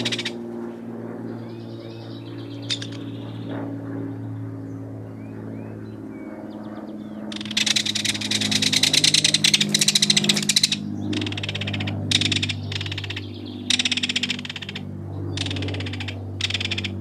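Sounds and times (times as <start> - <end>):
kingfisher rattling call: 0.0 - 0.4, 2.6 - 3.1, 7.3 - 17.0
steady low hum: 0.0 - 17.0.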